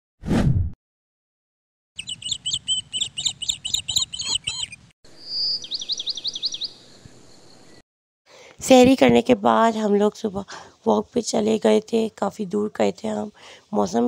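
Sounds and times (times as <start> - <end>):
bird whistle and falling notes: 2.0 - 7.2
birds chirping: 2.0 - 7.8.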